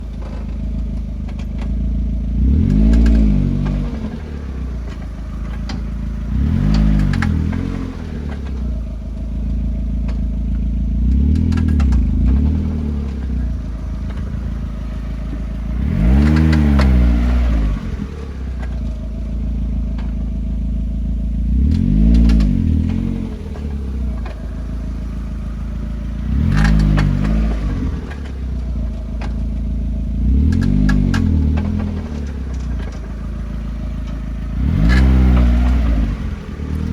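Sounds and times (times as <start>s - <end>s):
car engine idling and revving: 0.0s - 36.9s
engine clicks: 0.0s - 36.9s.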